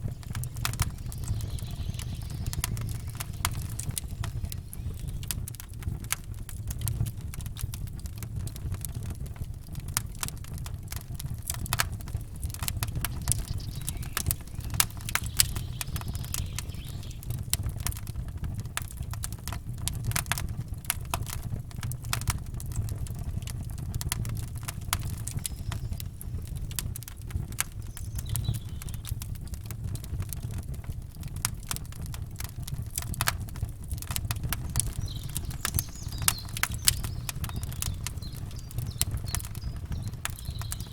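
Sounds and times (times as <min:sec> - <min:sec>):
steady low rumble: 0:00.0 - 0:06.6, 0:11.0 - 0:18.4
campfire crackling and popping: 0:00.0 - 0:40.9.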